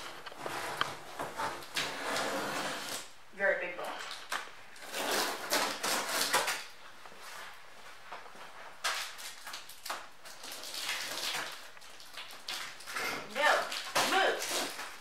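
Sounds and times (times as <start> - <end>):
cardboard scraping and rustling: 0.0 - 3.1.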